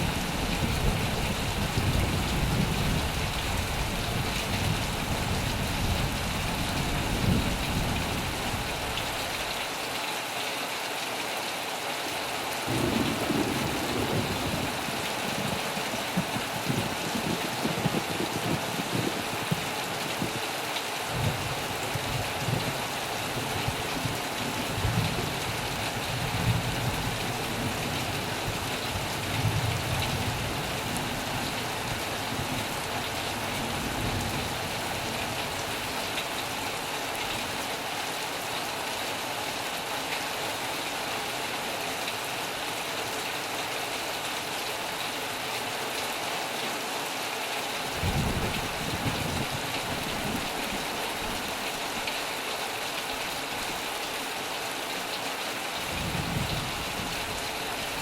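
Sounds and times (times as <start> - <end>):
low thunder rumbles: 0.0 - 8.9, 12.7 - 20.4, 48.0 - 51.4
heavy rain on a metal roof: 0.0 - 58.0.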